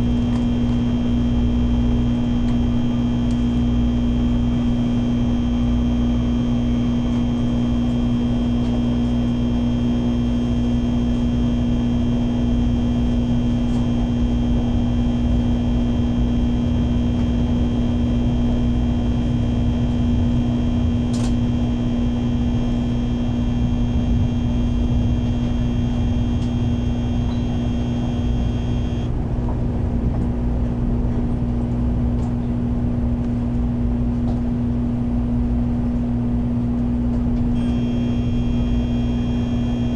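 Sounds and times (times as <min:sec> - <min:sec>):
train interior rumble: 0:00.0 - 0:39.9
high whining tones: 0:20.7 - 0:29.1, 0:37.6 - 0:39.9.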